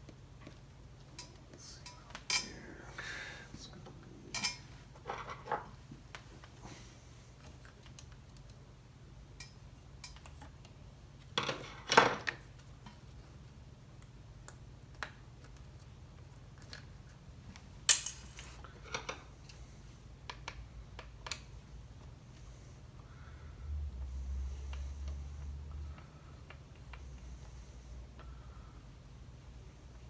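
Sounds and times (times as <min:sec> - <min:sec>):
metal tools clicking and clattering: 0:17.9 - 0:18.6.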